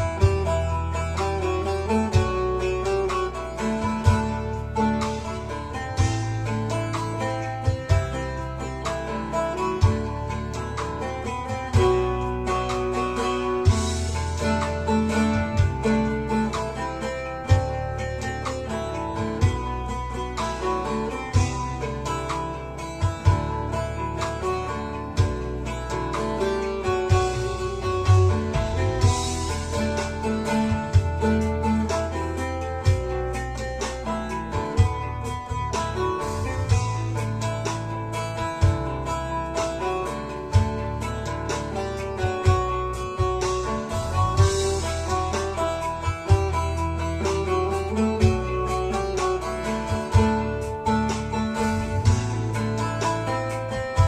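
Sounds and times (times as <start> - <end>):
low bass line: 0.0 - 54.0
plucked long-necked lute melody: 0.0 - 54.0
sharp beats: 0.0 - 54.0.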